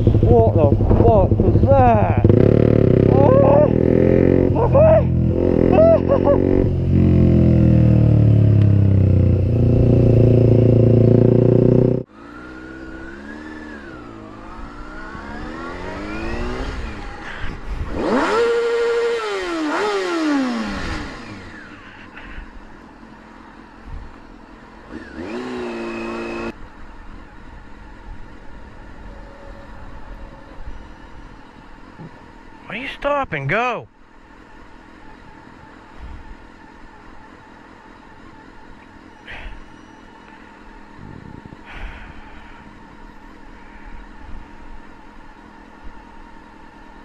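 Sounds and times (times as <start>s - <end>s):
motorcycle engine: 0.0s - 32.7s
road noise: 0.0s - 47.0s.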